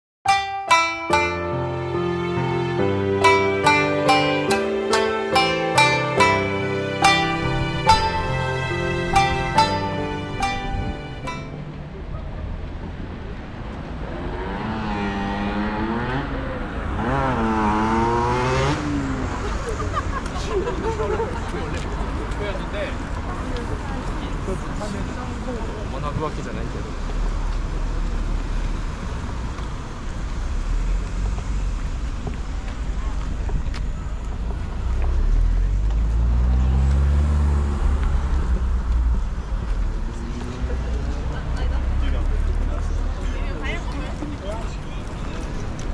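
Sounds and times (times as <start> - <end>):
traffic rumble: 0.8 - 45.9
vehicle engine accelerating: 1.1 - 20.2, 34.5 - 45.9.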